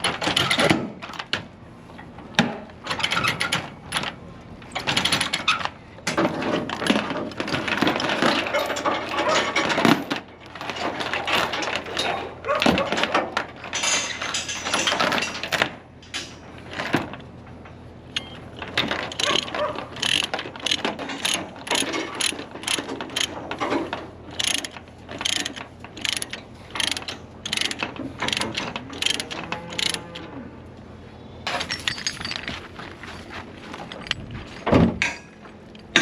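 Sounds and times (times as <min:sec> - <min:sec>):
ratchet clicking: 0:19.2 - 0:23.3, 0:24.3 - 0:29.2, 0:29.8 - 0:30.0.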